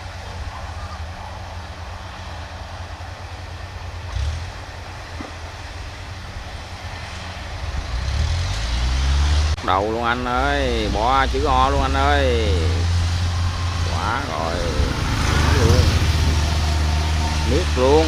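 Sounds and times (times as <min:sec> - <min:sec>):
combine harvester running: 0:00.0 - 0:18.0.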